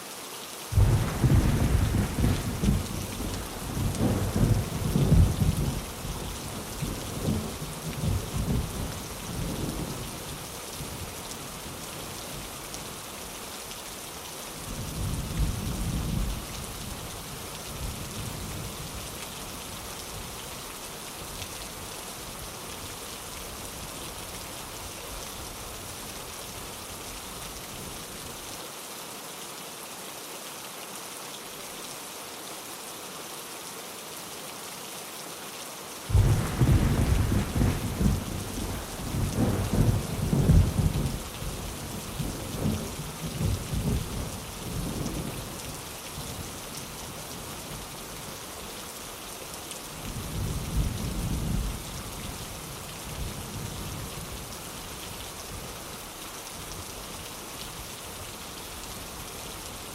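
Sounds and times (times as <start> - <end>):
heavy rain falling: 0.4 - 28.7, 36.1 - 59.9
rumbling thunderclap: 0.8 - 5.9, 36.1 - 41.3.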